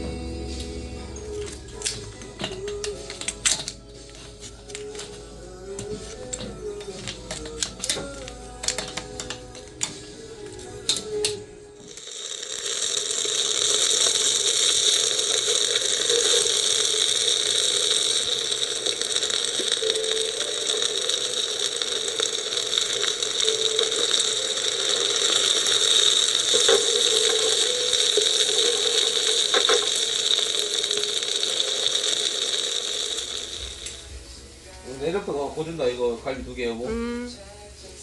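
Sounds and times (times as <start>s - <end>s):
meat sizzling on grill pan: 12.0s - 34.1s.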